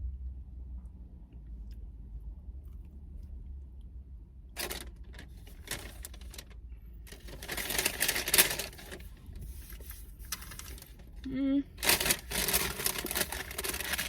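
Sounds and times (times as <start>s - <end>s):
food wrapper crinkling: 4.6s - 6.5s, 7.1s - 11.2s, 11.8s - 14.0s.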